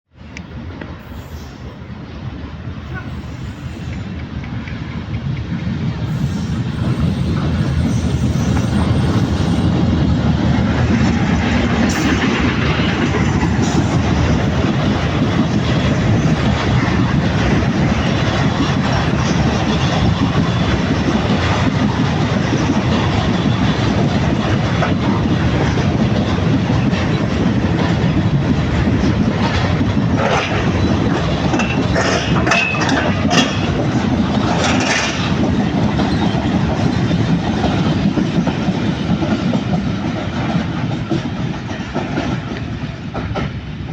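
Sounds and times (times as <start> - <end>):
train wheels clattering on rails: 2.4 - 43.9
high-pitched wheel squeal: 6.2 - 9.7.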